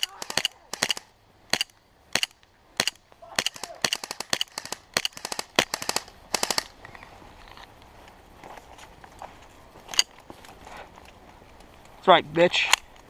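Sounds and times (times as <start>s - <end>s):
airsoft guns firing: 0.0s - 6.8s.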